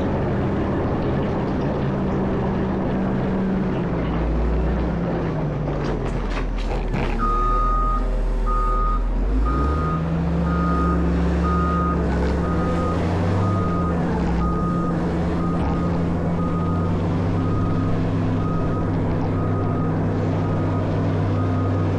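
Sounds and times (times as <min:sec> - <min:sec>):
diesel engine drone: 0:00.0 - 0:21.9
backup alarm beeping: 0:07.2 - 0:20.8.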